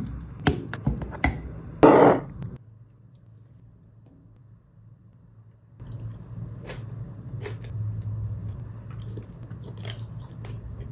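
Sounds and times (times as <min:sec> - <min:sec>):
person chewing food: 0:05.8 - 0:10.9.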